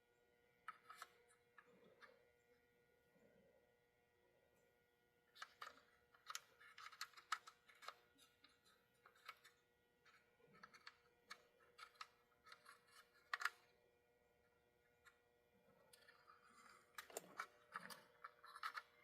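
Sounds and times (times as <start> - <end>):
clicks and taps of small parts: 5.4 - 13.6, 15.9 - 19.0.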